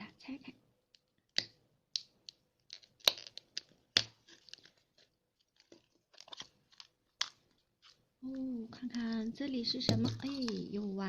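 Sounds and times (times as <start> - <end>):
sharp plastic cracks: 1.3 - 4.8
plastic crackling and crinkling: 2.0 - 11.0.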